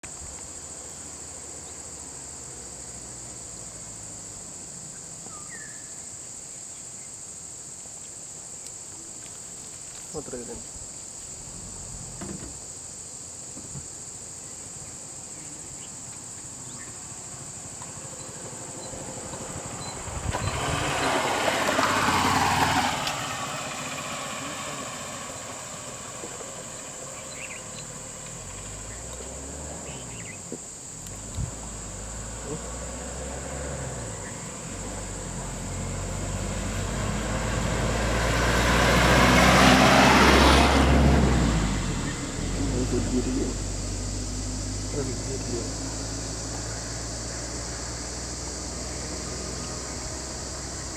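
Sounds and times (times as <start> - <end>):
high-pitched insect drone: 9.9 - 50.9
vehicle passing by: 16.7 - 30.4, 31.1 - 50.9.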